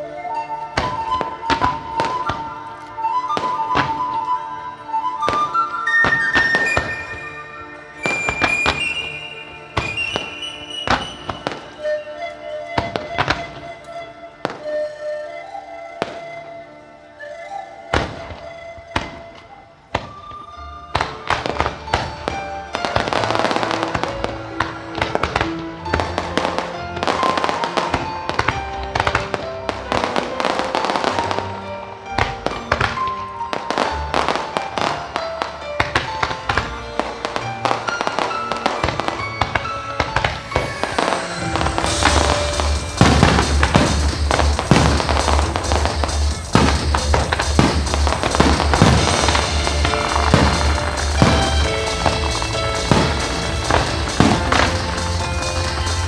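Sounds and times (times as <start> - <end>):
fireworks bursting and crackling: 0.0 - 56.0
loud music: 20.6 - 56.0.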